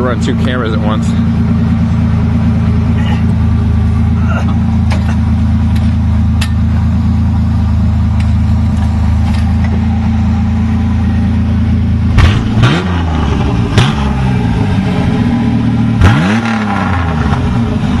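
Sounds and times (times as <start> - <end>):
engine idling and revving: 0.0 - 18.0.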